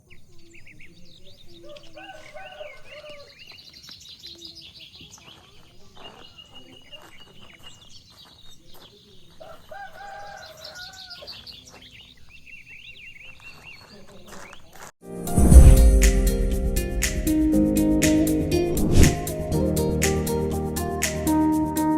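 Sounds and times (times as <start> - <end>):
small birds chirping: 0.0 - 14.9
rooster crowing: 1.6 - 3.4, 9.4 - 11.5.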